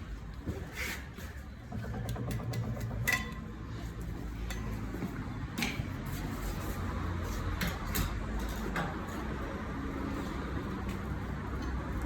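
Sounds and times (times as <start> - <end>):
steady low hum: 0.0 - 5.8
tools and wheel parts clanking: 0.4 - 9.6.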